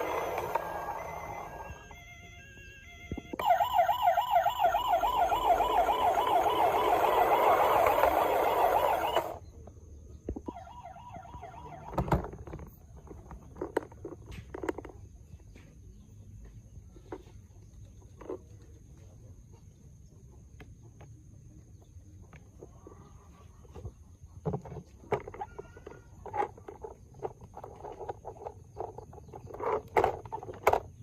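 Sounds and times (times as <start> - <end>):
toy siren wailing: 0.0 - 9.4, 10.5 - 12.3.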